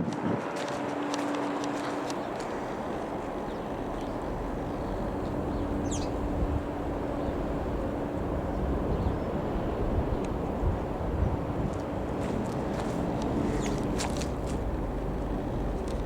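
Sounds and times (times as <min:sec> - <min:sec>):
propeller aircraft engine drone: 0:00.0 - 0:16.0
bird chirp: 0:02.1 - 0:10.4, 0:13.5 - 0:13.9.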